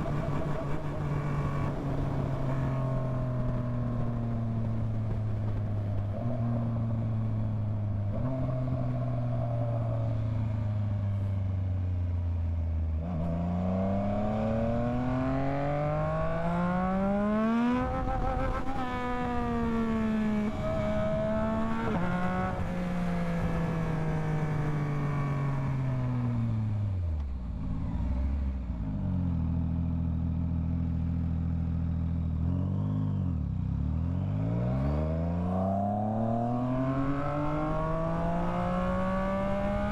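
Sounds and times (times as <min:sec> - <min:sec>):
motorcycle engine revving: 0:12.9 - 0:39.9.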